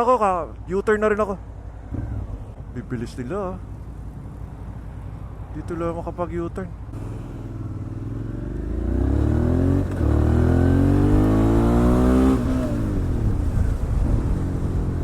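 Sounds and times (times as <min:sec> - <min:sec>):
motorcycle engine accelerating: 0:06.9 - 0:15.0.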